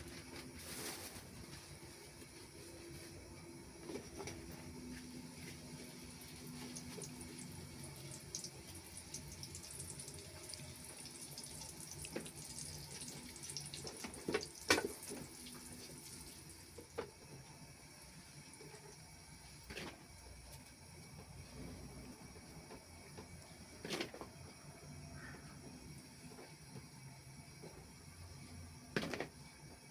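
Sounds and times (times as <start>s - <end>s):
tap water running into sink: 6.6s - 17.1s.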